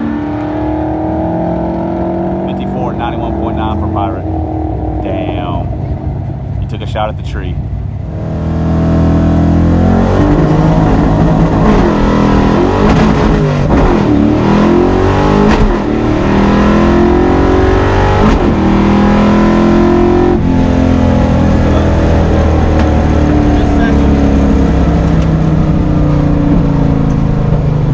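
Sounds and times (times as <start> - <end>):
car engine accelerating: 0.0 - 27.9.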